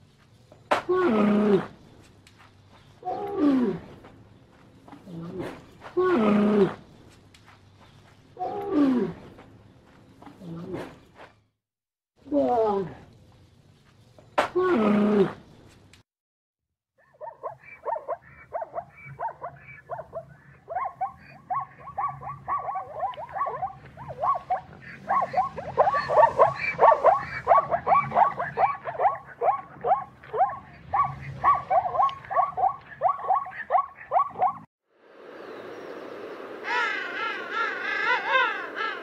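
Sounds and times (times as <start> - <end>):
zebra barking yelps: 17.0 - 34.7.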